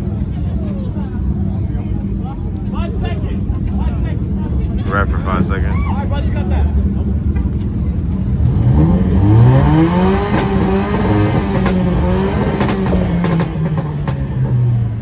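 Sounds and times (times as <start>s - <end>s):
vehicle engine revving: 1.3s - 15.0s
sharp exhaust pops: 9.8s - 14.6s.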